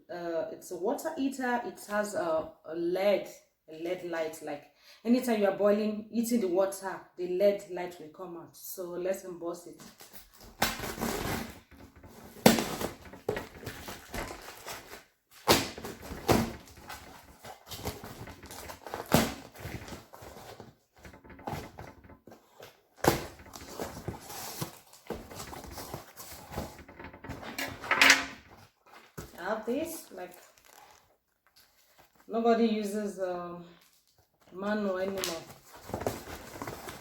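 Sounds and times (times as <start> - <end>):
cardboard packaging rustling: 9.8 - 32.3, 35.0 - 37.0
sharp knocks: 21.0 - 22.3.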